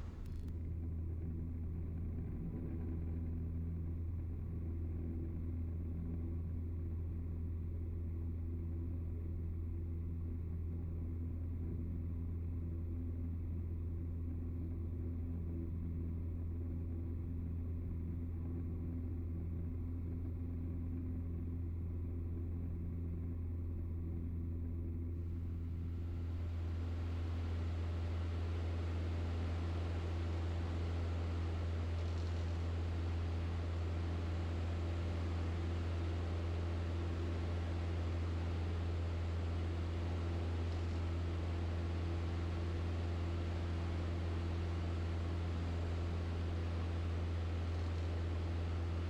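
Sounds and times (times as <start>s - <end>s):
aircraft engine and propeller droning: 25.2s - 49.0s.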